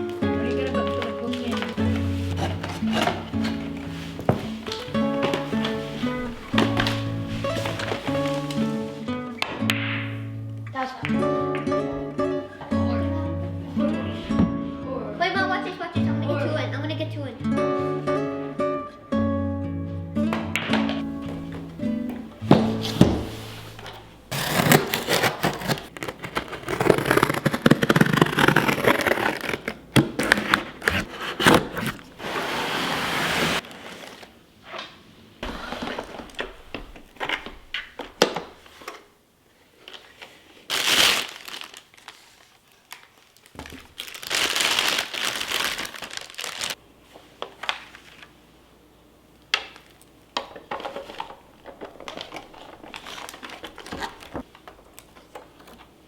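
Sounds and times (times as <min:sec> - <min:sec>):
packaging crinkling and rustling: 0:00.9 - 0:09.1, 0:21.0 - 0:39.1, 0:39.7 - 0:48.4, 0:49.6 - 0:56.0.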